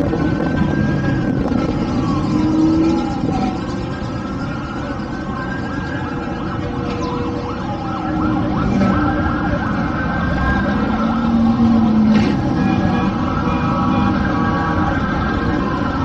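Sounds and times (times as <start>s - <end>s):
steady low rumble: 0.0s - 5.4s
car engines revving: 0.0s - 16.0s.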